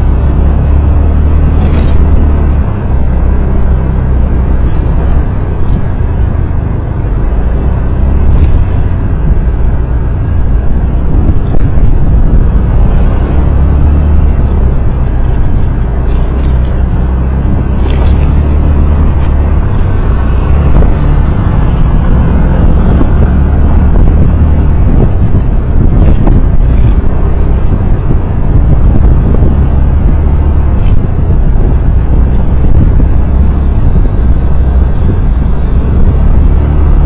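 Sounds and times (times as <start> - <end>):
vehicle driving on a road: 0.0 - 37.0.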